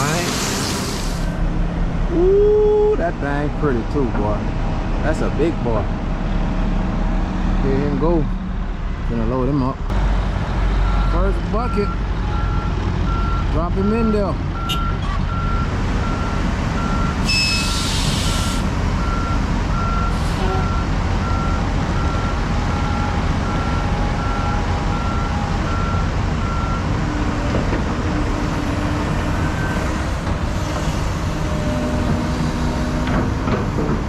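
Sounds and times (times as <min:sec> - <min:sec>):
heavy equipment engines running: 0:00.0 - 0:34.0
short hiss of air: 0:00.2 - 0:01.4, 0:17.6 - 0:18.6.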